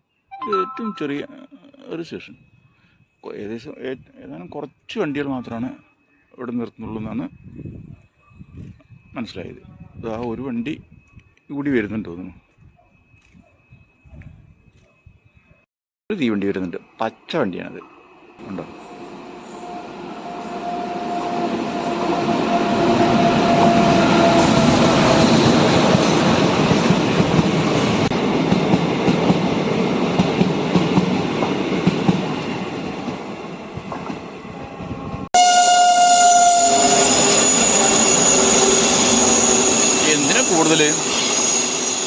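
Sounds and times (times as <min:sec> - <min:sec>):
passenger train passing: 0:17.8 - 0:42.0
loud noise with high tone: 0:35.6 - 0:42.0.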